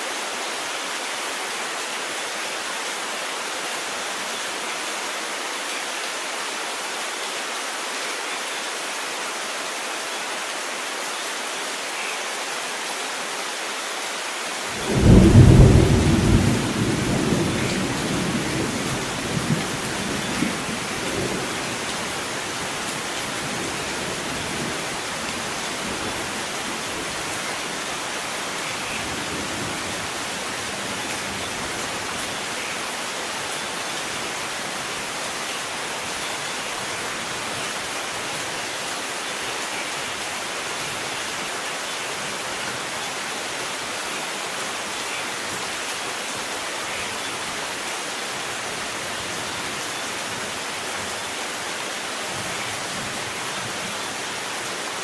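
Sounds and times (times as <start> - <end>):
steady rain downpour: 0.0 - 55.0
thunder rumbling: 14.8 - 21.6.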